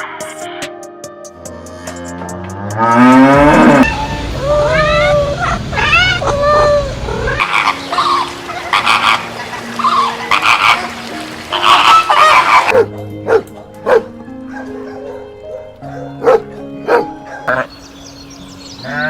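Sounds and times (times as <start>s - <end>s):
animal calls rising and falling: 2.9s - 12.7s
deep rumble: 3.2s - 7.4s.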